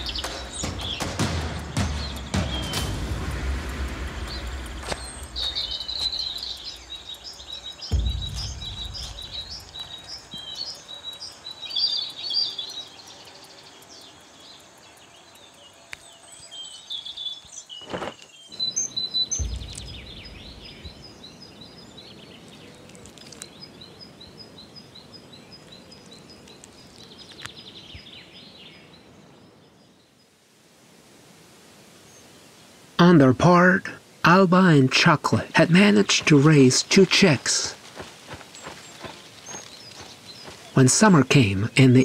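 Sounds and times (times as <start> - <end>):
birds chirping: 0.0 - 30.3, 32.0 - 42.0
short low rumble: 8.0 - 10.0, 19.4 - 21.4.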